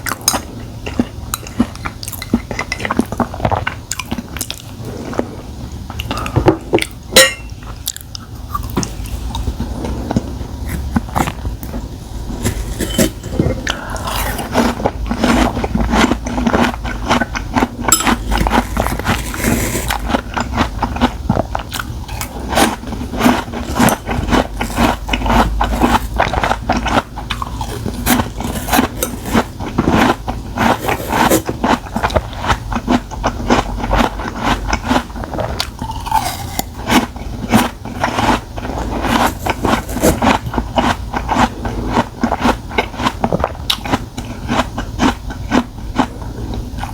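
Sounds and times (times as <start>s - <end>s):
chewing with wet crunches: 0.0s - 46.9s
utensil scraping a dish: 8.7s - 16.7s, 17.9s - 21.0s, 21.7s - 32.4s.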